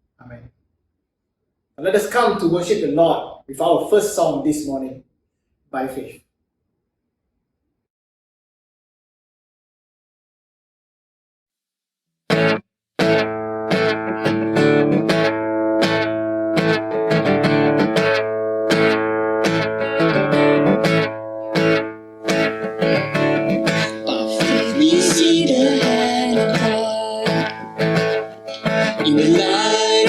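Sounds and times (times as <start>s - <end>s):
guitar chords strummed: 12.3s - 30.0s.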